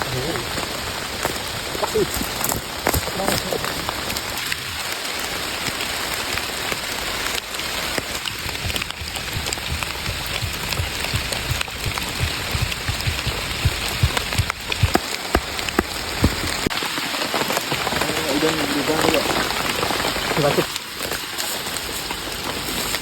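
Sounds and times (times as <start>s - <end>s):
rain falling in forest: 0.0s - 23.0s
large drops tapping: 8.3s - 16.8s.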